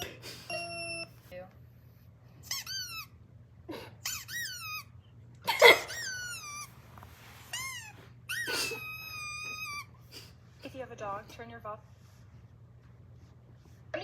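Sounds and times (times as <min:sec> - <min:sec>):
high-pitched squeaky calls: 0:04.0 - 0:04.9.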